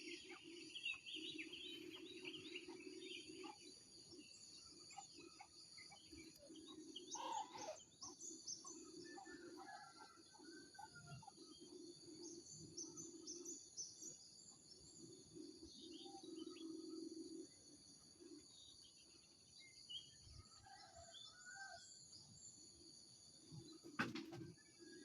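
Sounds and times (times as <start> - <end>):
small birds chirping: 0.0 - 9.9.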